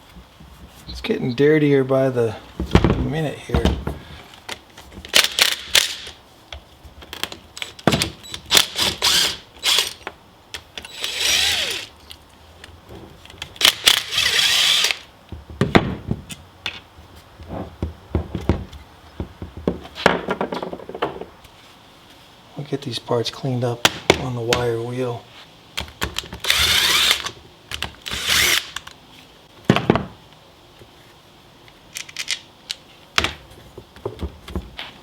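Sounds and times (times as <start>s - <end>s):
power tool bursts: 8.2s - 10.0s, 10.9s - 11.9s, 13.6s - 15.0s, 26.4s - 27.3s, 28.0s - 28.8s.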